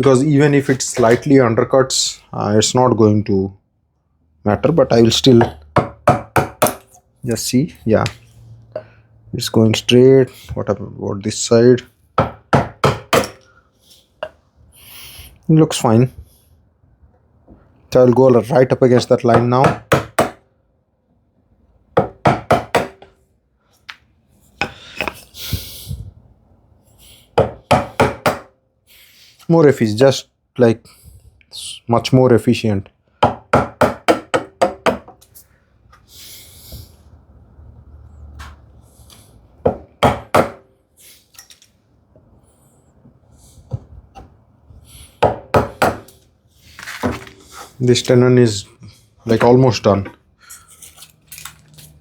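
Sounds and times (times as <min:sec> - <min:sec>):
chisel struck into wood: 0:05.4 - 0:06.9, 0:12.2 - 0:13.4, 0:19.0 - 0:20.4, 0:22.0 - 0:23.1, 0:27.4 - 0:28.5, 0:33.2 - 0:35.2, 0:39.7 - 0:40.7, 0:45.2 - 0:46.2.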